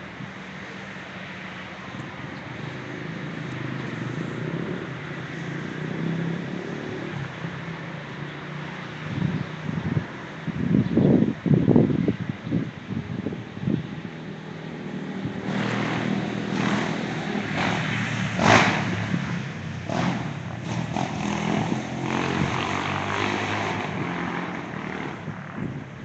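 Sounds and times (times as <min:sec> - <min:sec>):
rushes of noise: 0:14.6 - 0:26.0.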